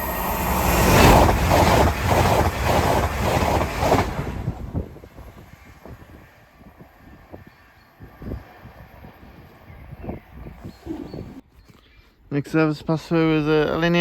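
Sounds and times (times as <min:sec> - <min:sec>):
train wheels beating over rail: 0:00.0 - 0:06.2
wind buffeting microphone: 0:00.0 - 0:11.4.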